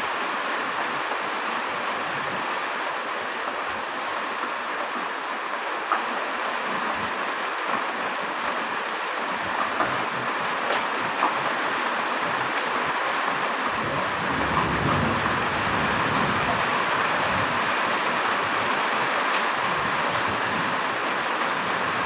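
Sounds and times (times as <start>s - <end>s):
heavy rain hissing: 0.0s - 22.0s
raindrop ticks: 9.4s - 11.5s.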